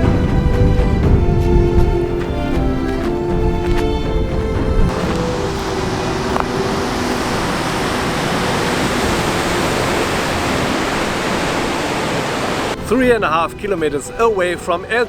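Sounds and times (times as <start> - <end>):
background music: 0.0 - 15.0
wind: 0.0 - 15.0
sea waves breaking: 1.9 - 12.8.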